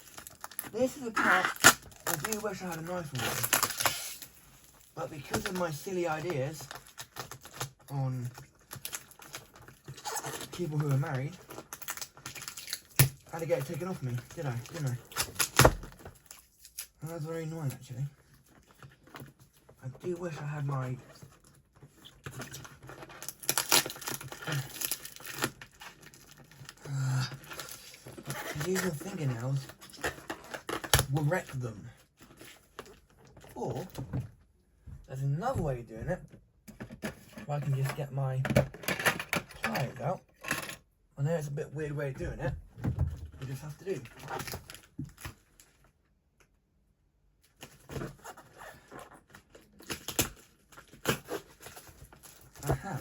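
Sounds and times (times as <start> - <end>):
tape tearing: 0.0 - 4.4, 8.7 - 17.0, 22.0 - 31.4, 47.6 - 53.0
packaging crinkling: 0.0 - 16.9, 21.2 - 31.4.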